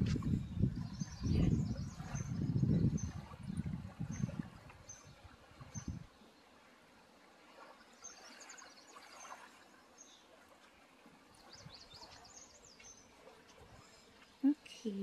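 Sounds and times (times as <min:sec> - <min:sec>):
birds chirping: 0:00.1 - 0:06.3, 0:11.3 - 0:15.0.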